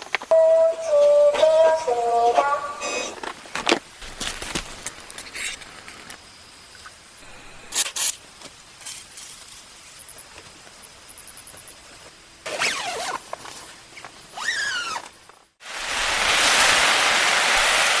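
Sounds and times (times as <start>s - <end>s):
heavy rain pouring: 15.6s - 18.0s.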